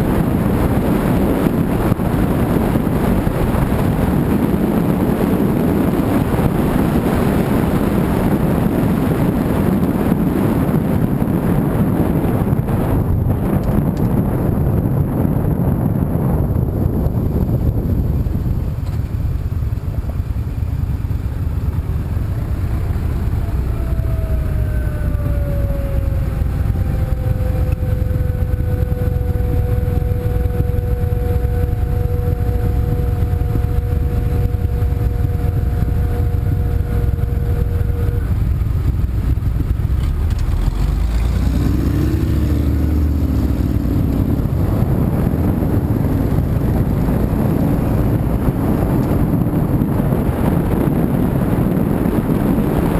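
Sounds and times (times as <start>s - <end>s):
car road and engine rumble: 0.0s - 52.9s
wavering pitched sound: 22.0s - 39.0s
tone sliding down in pitch: 22.5s - 38.6s.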